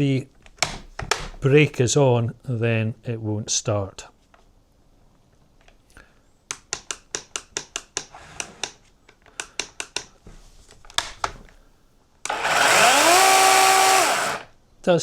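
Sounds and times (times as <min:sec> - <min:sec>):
chainsaw control clicks: 0:12.2 - 0:14.5
electric chainsaw whirring: 0:12.3 - 0:14.5.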